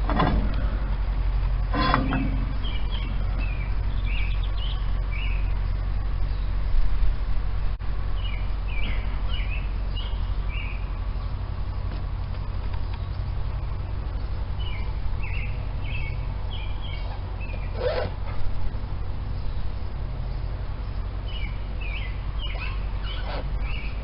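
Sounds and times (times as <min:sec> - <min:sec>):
metallic clank: 0:00.0 - 0:00.8, 0:01.6 - 0:03.6
small birds chirping: 0:00.0 - 0:24.0
steady low hum: 0:00.0 - 0:24.0.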